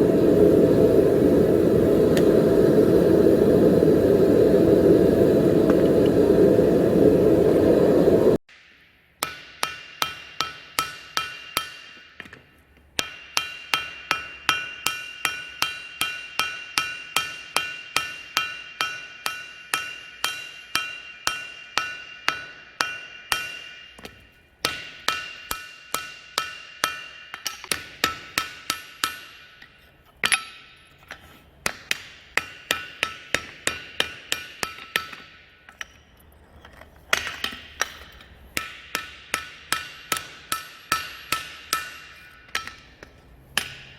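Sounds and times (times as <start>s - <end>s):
hammer striking steel on anvil: 8.5s - 36.1s, 37.1s - 43.9s.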